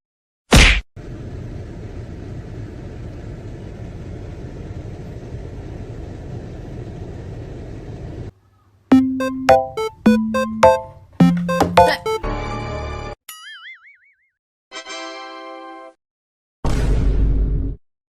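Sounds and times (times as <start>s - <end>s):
bouncy plucked musical notes: 8.9s - 12.3s.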